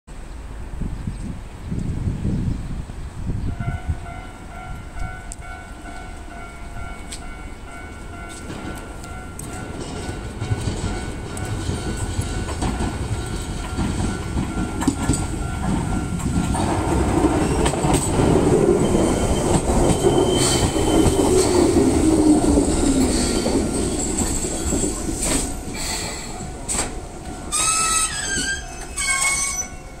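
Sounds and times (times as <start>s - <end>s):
train rumble: 0.1s - 30.0s
brakes squealing: 17.4s - 30.0s.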